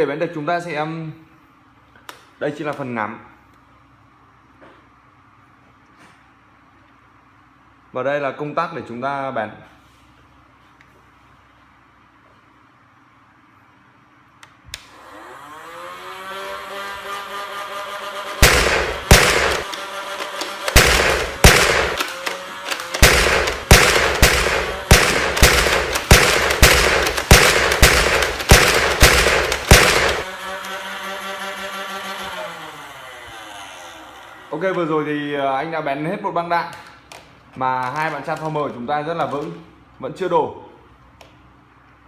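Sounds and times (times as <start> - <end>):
toy blaster motor whine: 14.9 - 35.0
foam dart shots: 18.4 - 19.7, 20.4 - 30.3
toy blaster switch click: 18.4 - 30.8.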